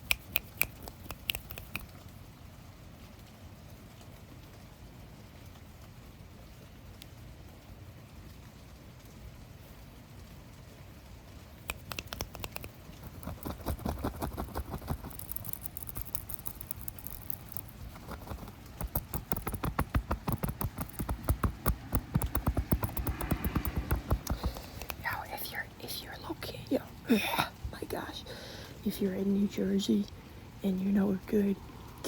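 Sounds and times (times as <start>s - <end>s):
fingers scratching near microphone: 0.0s - 1.9s, 11.7s - 25.5s.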